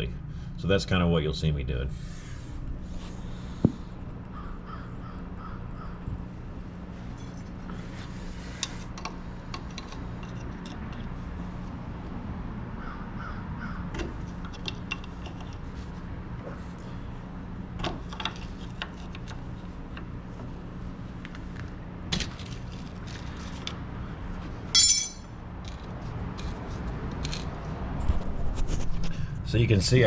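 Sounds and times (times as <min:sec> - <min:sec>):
steady low hum: 0:00.0 - 0:30.0
metal tool clicks and knocks: 0:24.8 - 0:26.6.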